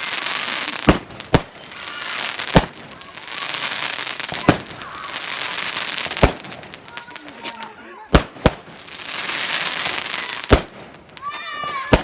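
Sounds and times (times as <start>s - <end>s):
firework bangs: 0.0s - 12.0s
firework hissing and crackling: 0.0s - 12.0s.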